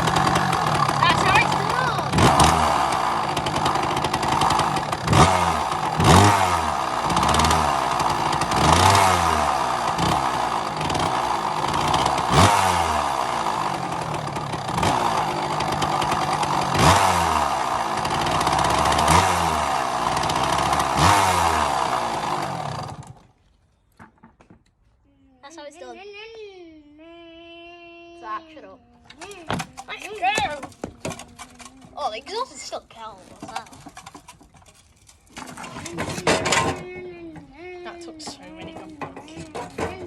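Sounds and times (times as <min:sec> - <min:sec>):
motorcycle engine revving: 0:00.0 - 0:23.3, 0:38.4 - 0:40.0.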